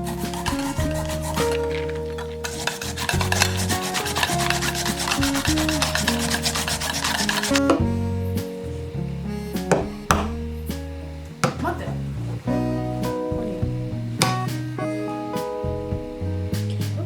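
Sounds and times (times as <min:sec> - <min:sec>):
food grated on a grater: 0:00.0 - 0:07.6
background music with held notes: 0:00.0 - 0:17.0.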